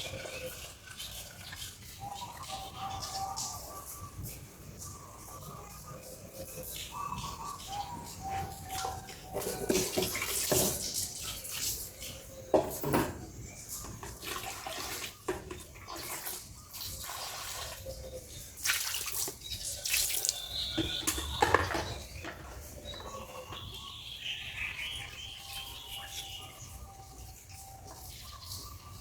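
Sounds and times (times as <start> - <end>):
water splashing and pouring: 8.6 - 12.9, 13.6 - 24.0.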